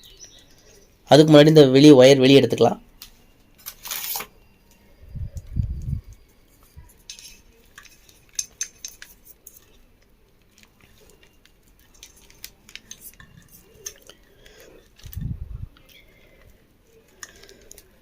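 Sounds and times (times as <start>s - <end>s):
metallic clicks of tools: 7.1s - 9.8s.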